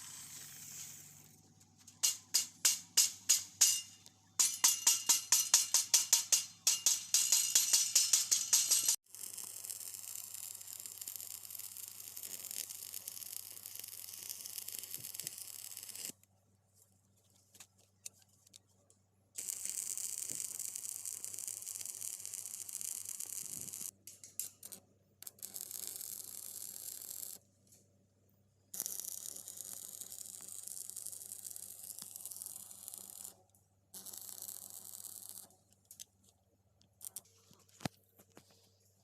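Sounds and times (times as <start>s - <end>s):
welding arc crackling and hissing: 0.0s - 1.3s, 4.5s - 16.1s, 19.4s - 23.9s.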